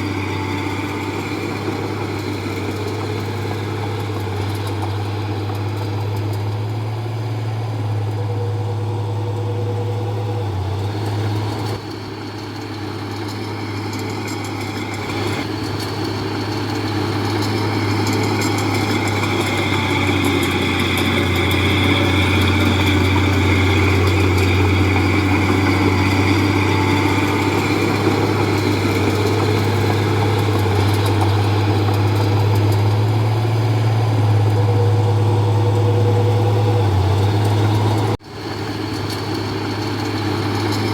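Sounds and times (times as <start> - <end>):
heavy diesel engine running: 0.0 - 40.9
high machine whine: 11.0 - 40.9.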